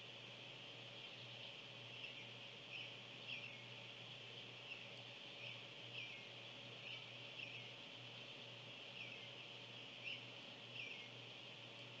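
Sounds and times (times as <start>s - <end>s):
bird chirping: 1.1s - 3.7s, 4.6s - 7.8s, 8.9s - 11.2s.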